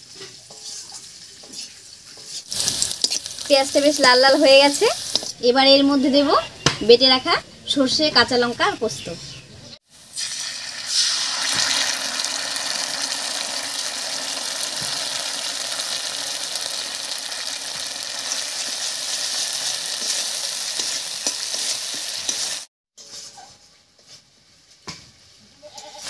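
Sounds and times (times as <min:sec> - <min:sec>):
oil sizzling in a pan: 0:00.0 - 0:06.2, 0:09.8 - 0:22.7.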